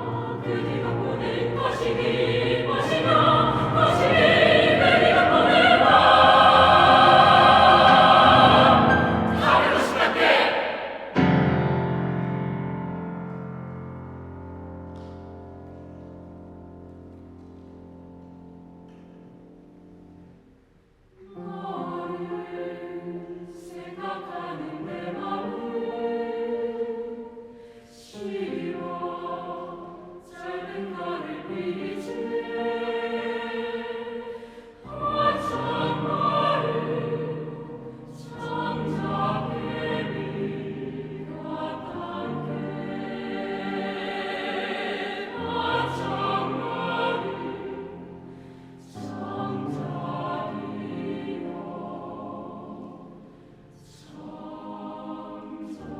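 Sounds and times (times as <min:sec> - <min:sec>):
choir singing: 0:00.0 - 0:12.6, 0:21.2 - 0:55.9
piano accompaniment: 0:00.0 - 0:20.2.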